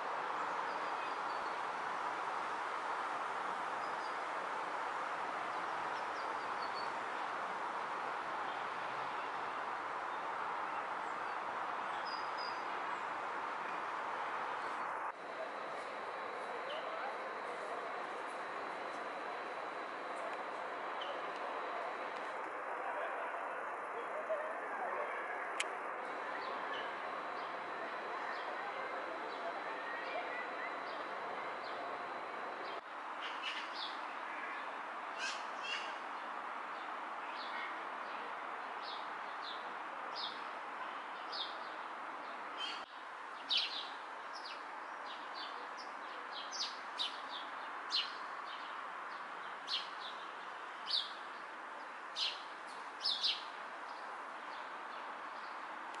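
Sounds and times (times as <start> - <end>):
steady background hush: 1.6 - 32.9
small birds chirping: 52.2 - 54.8.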